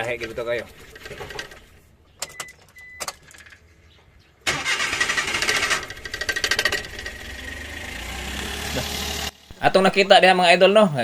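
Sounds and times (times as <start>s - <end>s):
engine cranking on starter: 4.4s - 9.5s.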